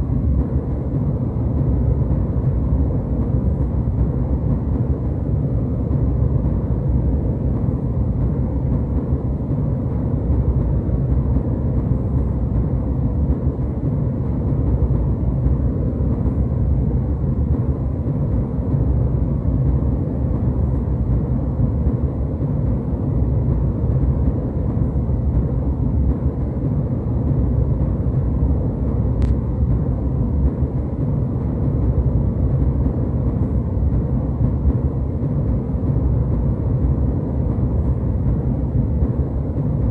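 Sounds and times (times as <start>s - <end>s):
airliner cabin rumble: 0.0s - 39.9s
faint click: 29.2s - 29.4s.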